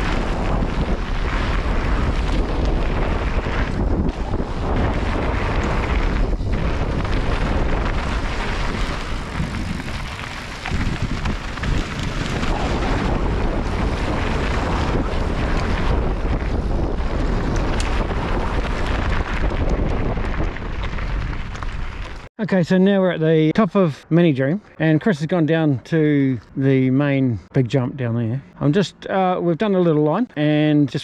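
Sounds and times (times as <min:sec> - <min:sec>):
wind buffeting microphone: 0:00.0 - 0:22.3.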